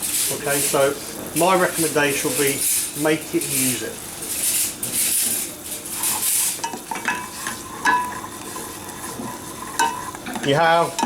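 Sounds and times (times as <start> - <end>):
liquid sizzling in a hot pan: 0.0 - 11.0
metal utensil clinking on pan: 6.6 - 8.2, 9.8 - 11.0.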